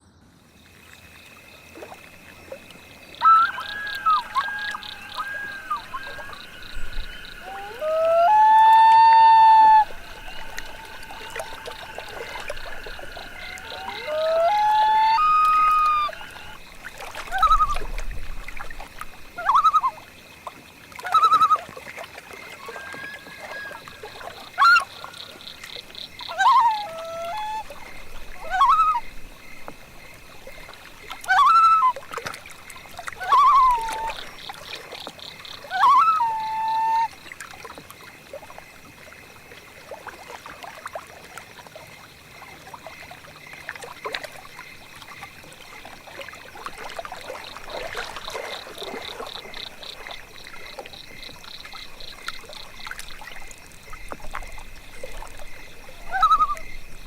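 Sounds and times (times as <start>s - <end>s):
loon calls: 3.2s - 16.6s, 22.5s - 25.6s, 26.2s - 27.8s, 28.4s - 29.1s, 33.2s - 34.3s, 35.6s - 37.1s, 56.1s - 56.6s.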